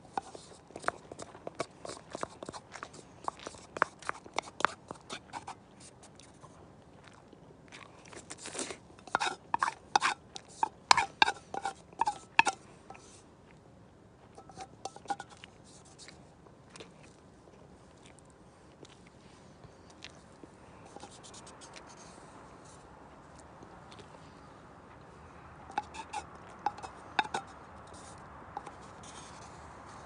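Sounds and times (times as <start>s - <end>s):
person crunching and chewing: 0.6s - 12.7s.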